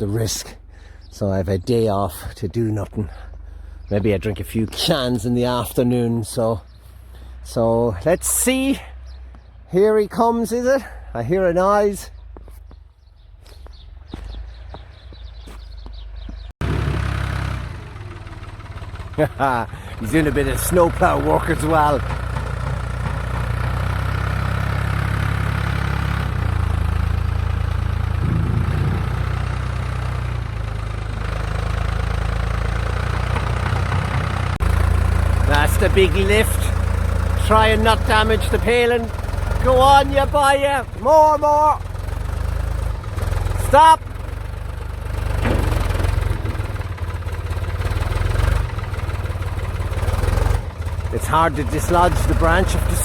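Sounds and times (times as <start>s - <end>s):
forklift engine running: 12.2s - 53.0s.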